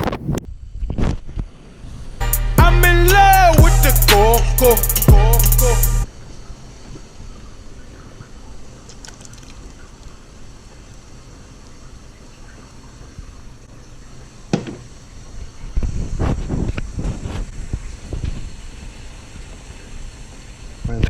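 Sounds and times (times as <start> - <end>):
water bubbling at a boil: 8.7 - 15.6.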